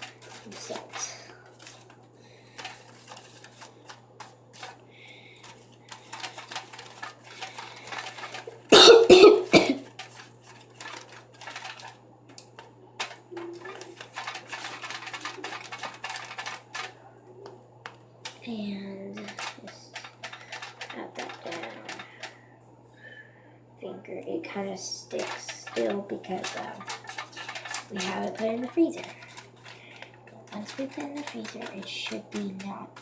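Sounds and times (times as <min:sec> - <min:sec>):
person coughing: 0:08.7 - 0:09.9
utensil clicking in plastic container: 0:09.5 - 0:17.0, 0:19.2 - 0:22.3, 0:25.2 - 0:33.0.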